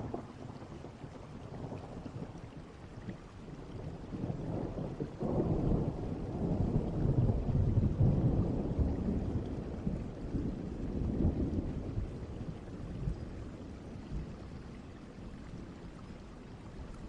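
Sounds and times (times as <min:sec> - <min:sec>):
steady rain: 0:00.0 - 0:17.0
distant thunder rumbling: 0:04.0 - 0:16.0.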